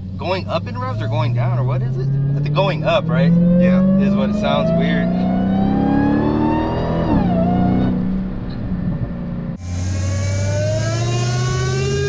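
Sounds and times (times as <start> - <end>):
car engine accelerating: 0.0 - 12.0
supercharger whine: 0.0 - 12.0.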